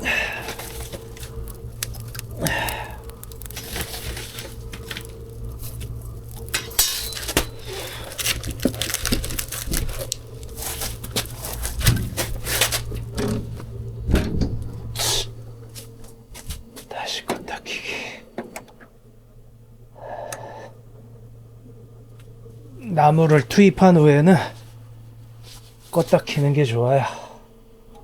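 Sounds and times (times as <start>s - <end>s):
logs clunking against metal: 0.0s - 17.6s
low machine hum: 0.0s - 28.0s.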